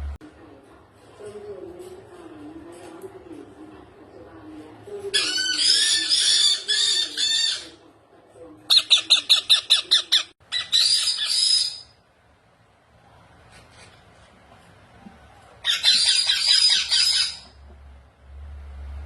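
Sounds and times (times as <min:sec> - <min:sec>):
parrot squawking: 0:05.2 - 0:07.8, 0:08.7 - 0:12.0, 0:15.6 - 0:17.6.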